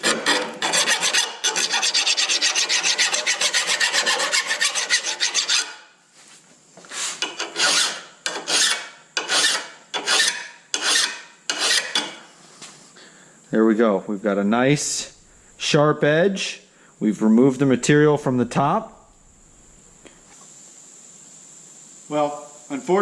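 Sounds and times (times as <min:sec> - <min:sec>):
file scraping steel blade: 0:00.0 - 0:05.8, 0:06.9 - 0:12.2.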